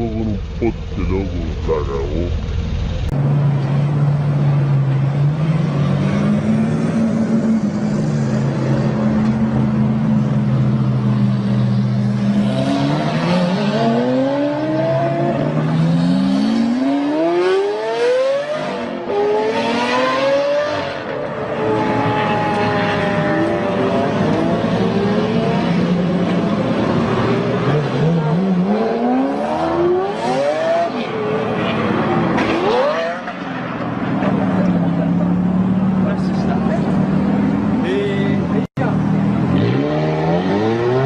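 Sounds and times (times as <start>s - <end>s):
car engine accelerating: 0.0s - 21.1s.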